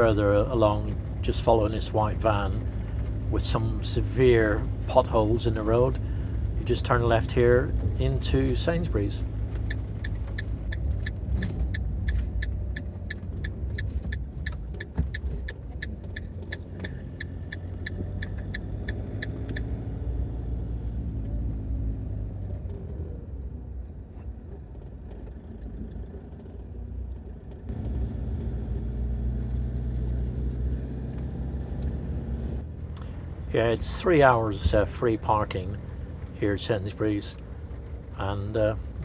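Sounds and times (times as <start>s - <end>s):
turn indicator ticking: 0.0s - 20.5s
engine and road rumble: 0.0s - 39.0s.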